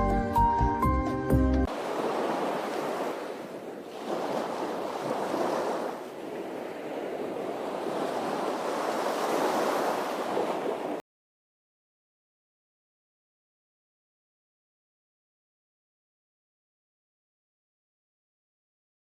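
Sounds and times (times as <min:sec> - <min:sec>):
ocean waves washing in: 0:01.7 - 0:11.0.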